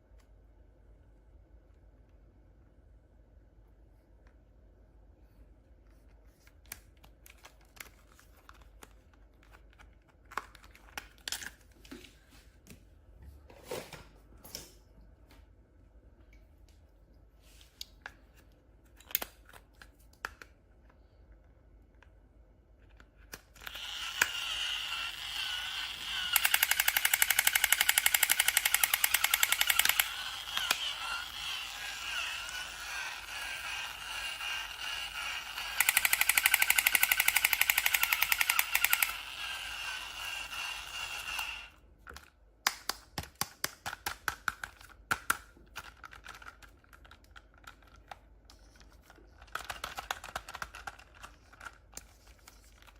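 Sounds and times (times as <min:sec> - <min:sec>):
toy machine-gun sound effect: 0:23.6 - 0:41.7.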